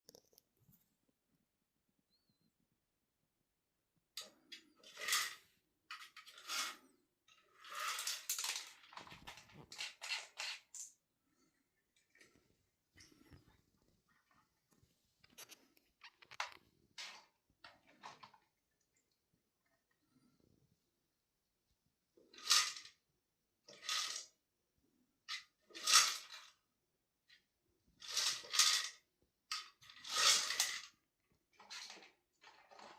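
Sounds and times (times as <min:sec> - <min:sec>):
hard toy clattering and rattling: 0:04.2 - 0:11.0, 0:25.3 - 0:26.6, 0:28.0 - 0:31.0, 0:31.6 - 0:32.9.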